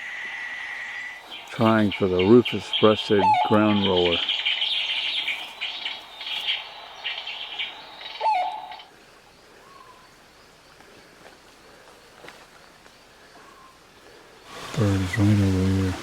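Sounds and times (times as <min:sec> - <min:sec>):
soft bird call: 0:00.0 - 0:08.9
bird chirps and trills: 0:00.1 - 0:08.9.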